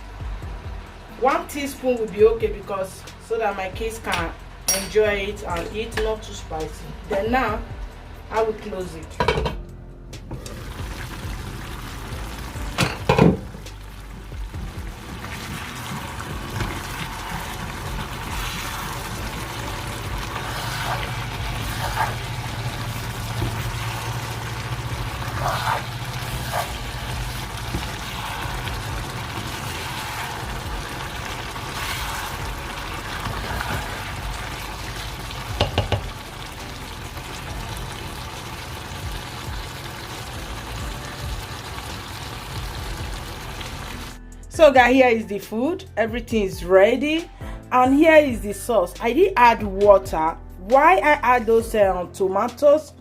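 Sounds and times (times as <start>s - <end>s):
sauce bubbling and sizzling: 0.0s - 2.2s, 9.6s - 44.2s.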